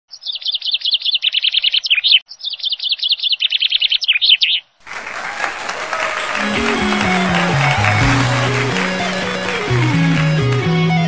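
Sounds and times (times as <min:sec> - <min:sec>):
songbird trilling: 0:00.1 - 0:04.7
music: 0:05.3 - 0:11.0.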